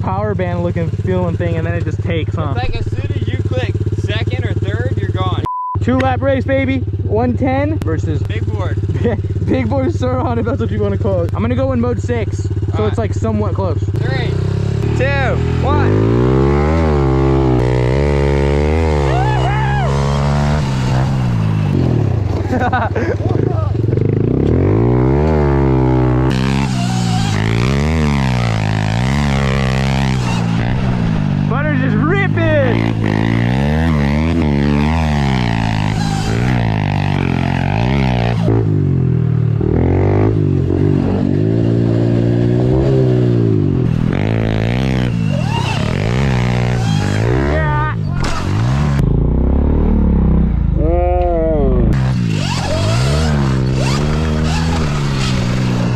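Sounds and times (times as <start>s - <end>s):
dirt bike engine revving: 0.0s - 55.9s
person's voice: 23.0s - 23.8s, 31.5s - 33.0s, 50.8s - 52.0s.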